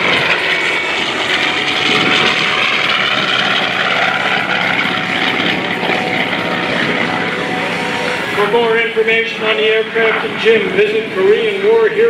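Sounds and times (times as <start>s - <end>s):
radial aircraft engine roaring: 0.0s - 12.0s.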